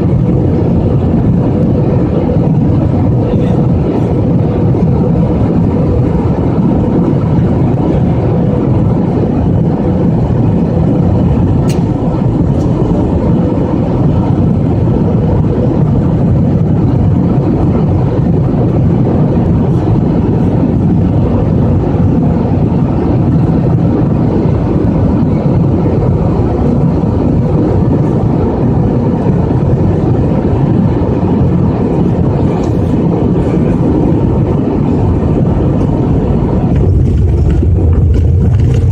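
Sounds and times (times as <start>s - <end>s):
airliner cabin engine rumble: 0.0s - 38.9s
small click: 11.7s - 11.9s.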